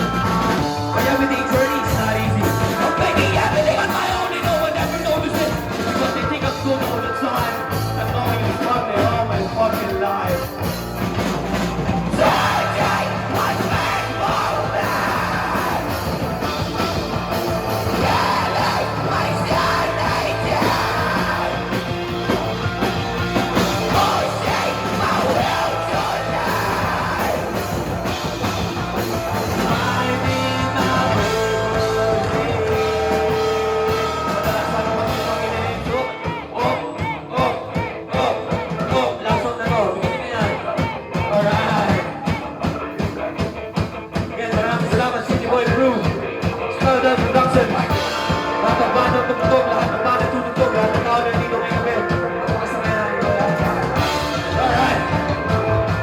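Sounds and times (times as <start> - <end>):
live rock band playing: 0.0 - 56.0
person singing: 12.1 - 17.1, 17.8 - 22.9, 23.5 - 28.2, 29.2 - 43.5, 44.2 - 56.0.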